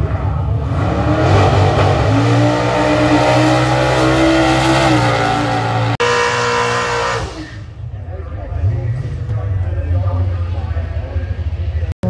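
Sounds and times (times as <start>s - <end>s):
drag car engine at high revs: 0.0s - 7.8s.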